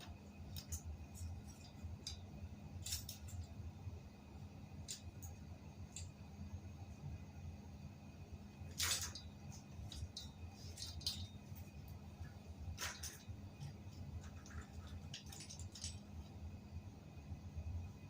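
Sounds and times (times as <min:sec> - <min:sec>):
low steady hum: 0:00.0 - 0:18.0
light clinks and scrapes: 0:09.9 - 0:11.8, 0:12.8 - 0:16.2.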